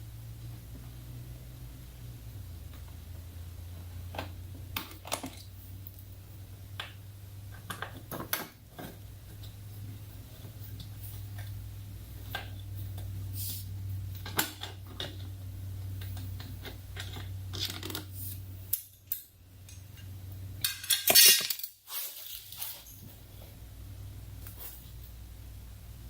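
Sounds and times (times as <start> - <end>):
steady low hum: 0.0 - 21.4, 22.2 - 26.0
metal tools clinking: 18.7 - 23.1.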